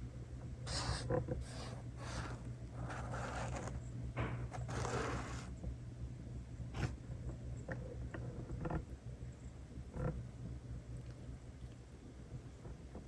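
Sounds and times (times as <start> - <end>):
steady low hum: 0.0 - 13.0
kittens scratching and rustling: 0.7 - 5.7.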